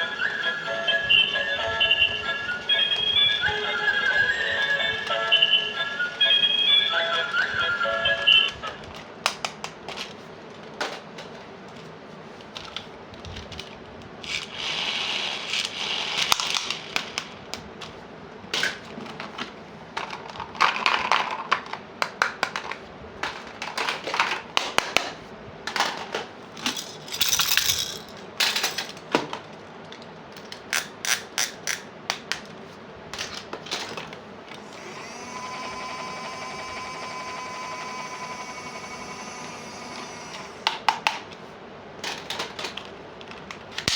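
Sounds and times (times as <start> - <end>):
steady hum with held tones: 0.0 - 9.3, 34.3 - 42.0
plastic toy pieces clicking: 26.6 - 29.0.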